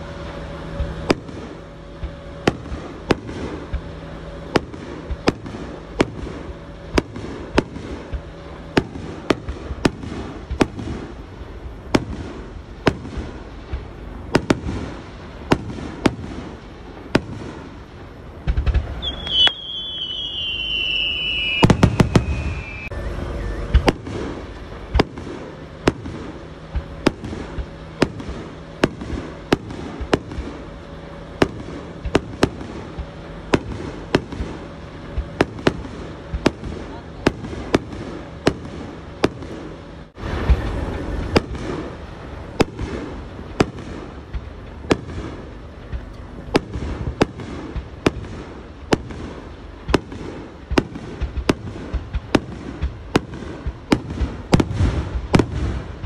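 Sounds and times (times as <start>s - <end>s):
fireworks bursting: 0.0s - 56.0s
falling firework whistle: 18.5s - 25.1s.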